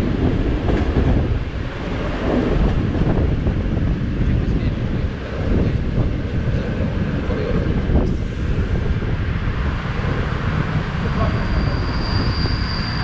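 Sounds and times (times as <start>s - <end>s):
train wheels rolling: 0.0s - 13.0s
wind buffeting microphone: 0.0s - 13.0s
high-pitched train squeal: 11.0s - 13.0s.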